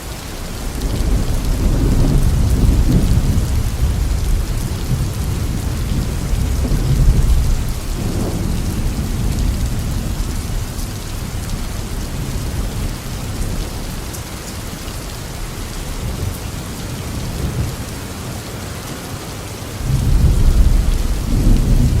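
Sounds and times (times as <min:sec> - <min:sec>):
steady rain: 0:00.0 - 0:22.0
thunder rumbling: 0:00.4 - 0:17.9, 0:19.8 - 0:22.0.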